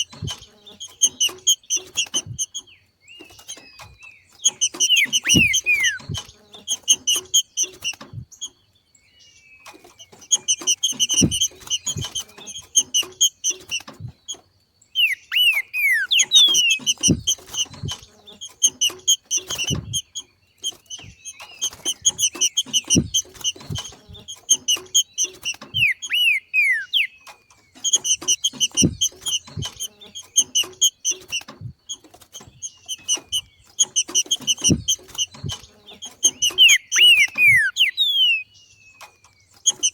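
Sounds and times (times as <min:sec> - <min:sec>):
fast repeated bird call notes: 0:00.0 - 0:08.5, 0:09.9 - 0:14.4, 0:15.0 - 0:39.9
downslurred bird whistles: 0:04.5 - 0:06.3, 0:15.0 - 0:17.9, 0:25.7 - 0:27.2, 0:33.9 - 0:38.6
low thumps: 0:10.6 - 0:12.2, 0:16.3 - 0:18.2, 0:22.0 - 0:24.6.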